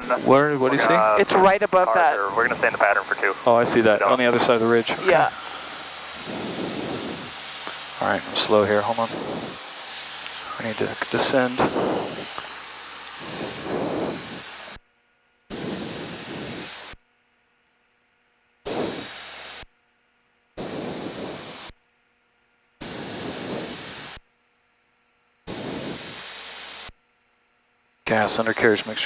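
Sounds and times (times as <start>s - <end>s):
hissing airplane cabin noise: 0.0s - 14.8s, 15.5s - 17.0s, 18.7s - 19.2s, 20.6s - 21.7s, 22.8s - 24.2s, 25.5s - 26.5s, 28.1s - 29.0s.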